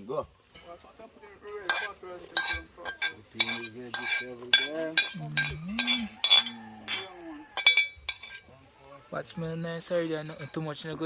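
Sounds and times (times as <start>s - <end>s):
metal spoon knocking a pot: 1.7s - 8.4s.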